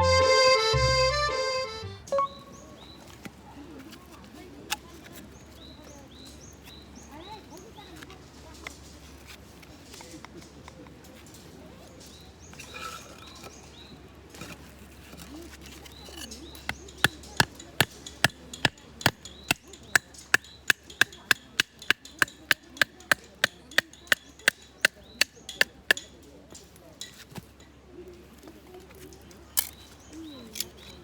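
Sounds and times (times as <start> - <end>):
wood being chopped: 16.1 - 27.5.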